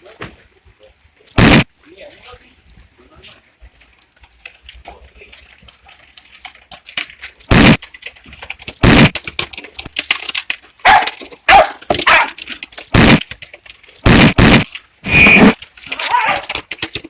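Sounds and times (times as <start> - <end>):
dog barking loudly: 10.8 - 12.4.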